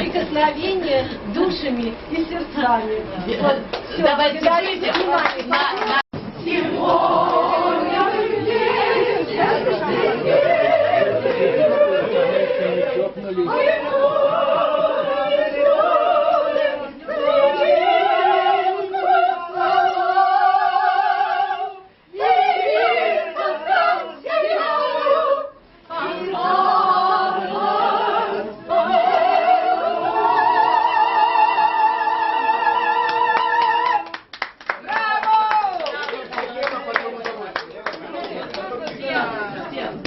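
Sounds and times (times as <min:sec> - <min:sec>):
group singing operatic harmony: 0:03.5 - 0:34.1.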